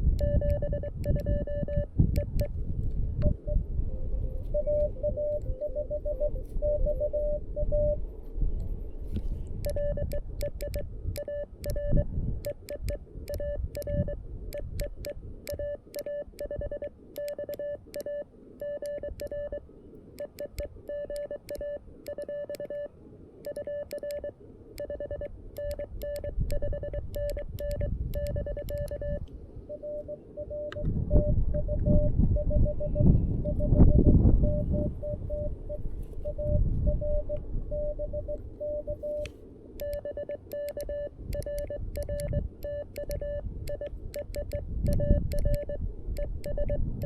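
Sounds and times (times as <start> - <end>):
morse code beeps: 0.0 - 2.6, 3.2 - 3.6, 4.4 - 8.0, 9.6 - 19.6, 20.2 - 47.0
paddle key clicking: 0.1 - 1.4, 12.4 - 16.6, 39.2 - 47.0.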